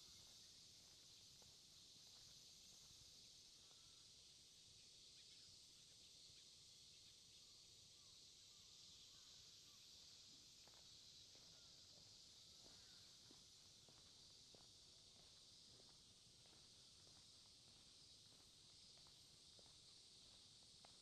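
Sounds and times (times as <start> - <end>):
insects chirring: 0.0 - 21.0
light ticks: 20.8 - 21.0.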